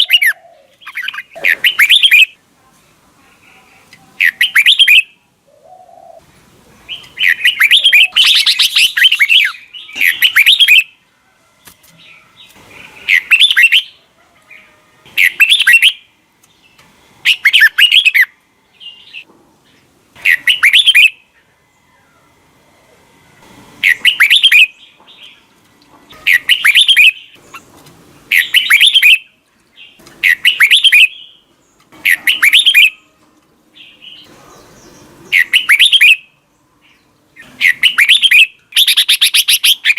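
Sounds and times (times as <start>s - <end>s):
bulbul warbling song: 0.0s - 2.4s, 6.9s - 11.0s, 12.4s - 14.0s, 15.1s - 16.1s, 17.2s - 19.3s, 20.2s - 21.3s, 23.8s - 25.4s, 26.1s - 27.7s, 28.3s - 31.4s, 32.0s - 33.2s, 33.8s - 36.4s, 37.4s - 39.9s.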